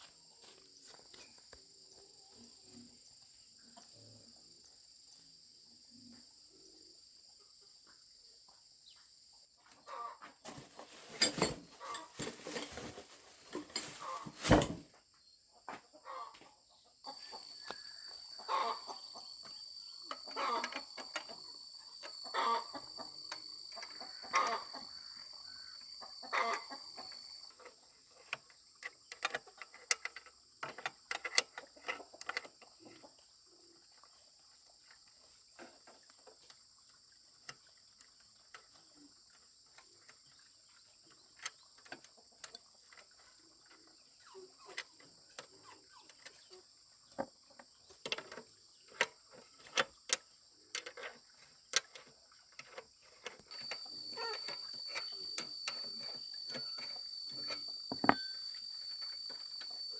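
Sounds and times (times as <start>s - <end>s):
insects chirring: 0.0s - 59.9s
chickens clucking: 9.8s - 11.0s, 11.8s - 14.3s, 15.9s - 19.4s, 20.1s - 27.5s
sharp knocks and clatter: 56.5s - 58.4s.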